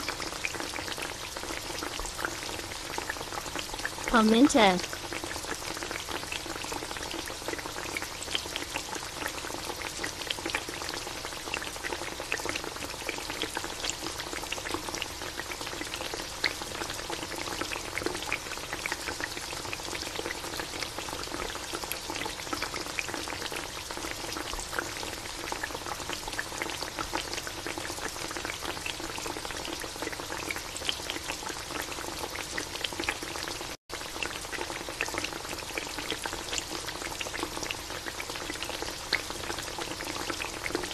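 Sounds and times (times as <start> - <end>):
sauce bubbling and sizzling: 0.0 - 40.9.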